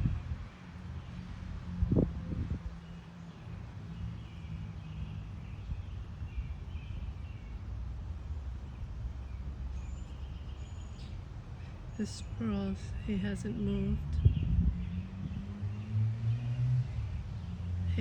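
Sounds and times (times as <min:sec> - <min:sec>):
steady low rumble: 0:12.0 - 0:15.4.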